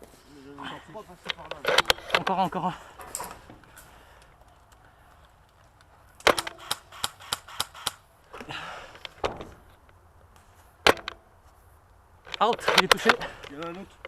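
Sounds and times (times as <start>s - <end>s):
rapid clicks: 4.2s - 8.0s
airsoft gun shots: 6.2s - 8.0s.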